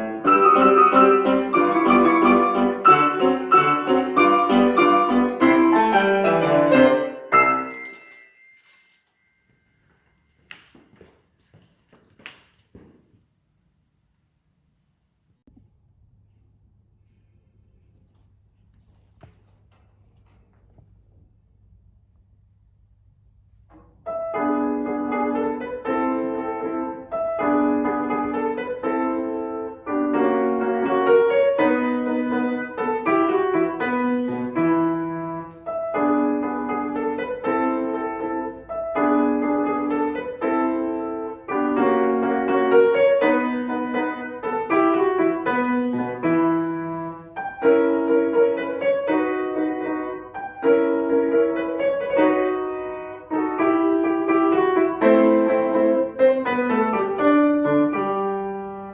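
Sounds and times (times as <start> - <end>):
piano playing chords: 0.0 - 8.8, 24.2 - 58.9.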